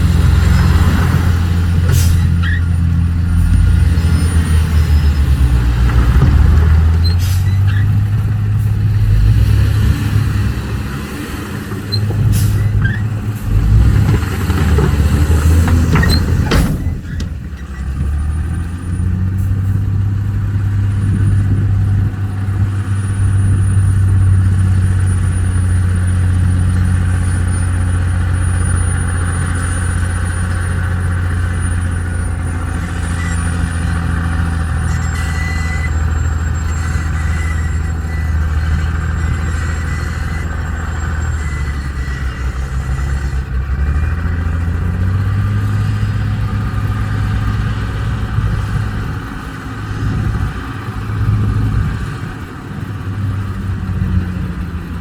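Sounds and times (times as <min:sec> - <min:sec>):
diesel truck engine rumbling: 0:00.0 - 0:55.0
sharp clanks: 0:11.7 - 0:18.7.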